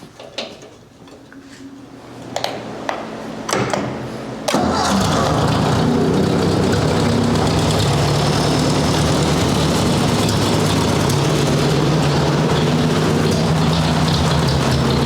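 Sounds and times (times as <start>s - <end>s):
tractor engine idling: 4.5s - 15.0s.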